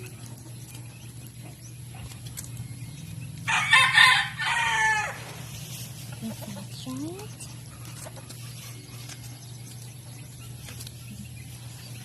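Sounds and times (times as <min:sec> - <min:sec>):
rooster crowing: 0:03.5 - 0:05.3.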